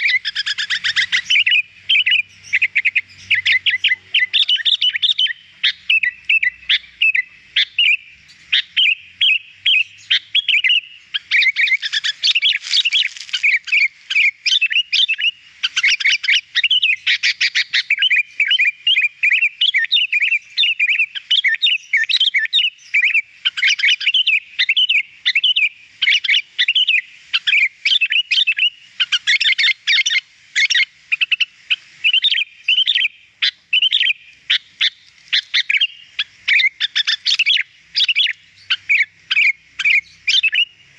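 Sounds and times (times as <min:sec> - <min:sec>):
bird chirping and warbling: 0:00.0 - 0:40.9.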